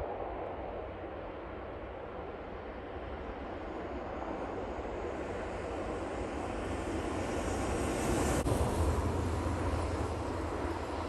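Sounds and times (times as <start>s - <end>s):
train rushing noise: 2.8s - 11.0s.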